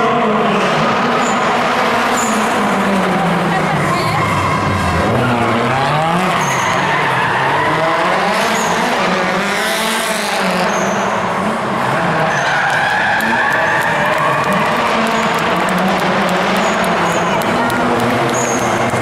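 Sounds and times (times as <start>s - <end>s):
car engine revving: 0.0s - 19.0s
tyre squeal: 4.1s - 9.0s, 10.6s - 11.2s, 12.2s - 13.9s.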